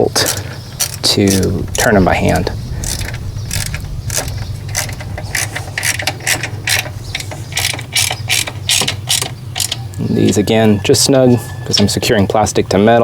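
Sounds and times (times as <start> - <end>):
socket ratchet clicking: 0.2 - 1.5, 2.8 - 10.4.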